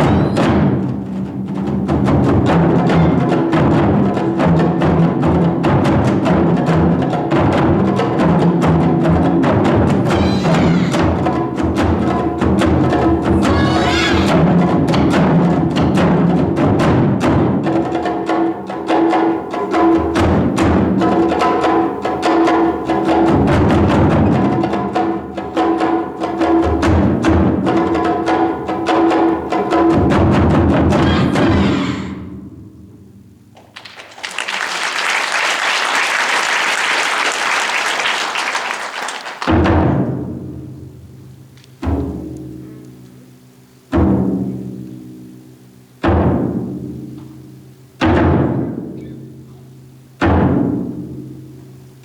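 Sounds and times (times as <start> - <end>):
taiko drums: 0.0 - 34.0, 39.4 - 42.8, 43.9 - 51.8
audience applause: 10.1 - 11.0, 13.4 - 14.3, 33.6 - 39.6
steady held tones: 10.1 - 11.4, 13.1 - 15.3.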